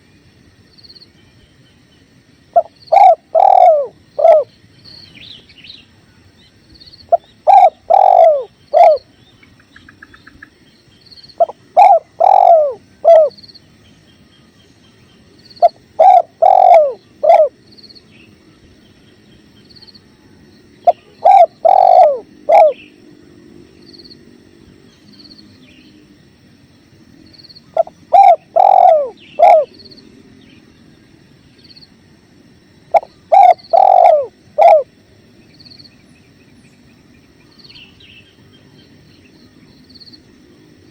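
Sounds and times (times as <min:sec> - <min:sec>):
dove cooing: 0:02.6 - 0:04.5, 0:07.1 - 0:09.1, 0:11.4 - 0:13.4, 0:15.6 - 0:17.6, 0:20.8 - 0:22.9, 0:27.7 - 0:29.8, 0:32.9 - 0:34.9.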